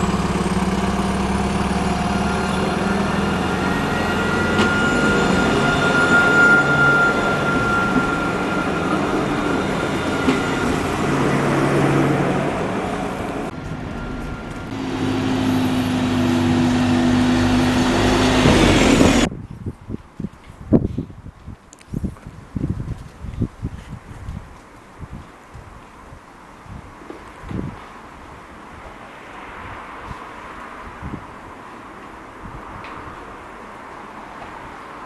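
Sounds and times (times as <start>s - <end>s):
large vehicle engine whining: 0.0s - 19.3s.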